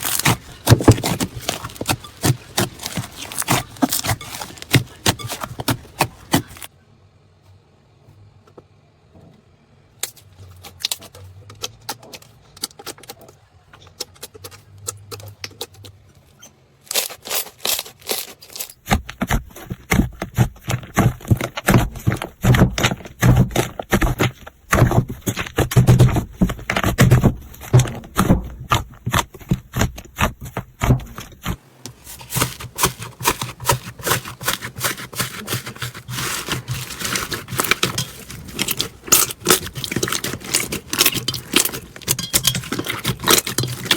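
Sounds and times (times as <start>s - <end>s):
slime squelching and crackling: 0.0s - 6.7s, 16.9s - 43.9s.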